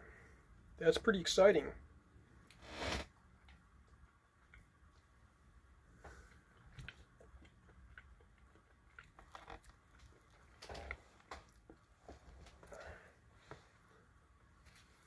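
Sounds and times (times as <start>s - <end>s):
mouth chewing clicks and smacks: 6.5s - 11.8s.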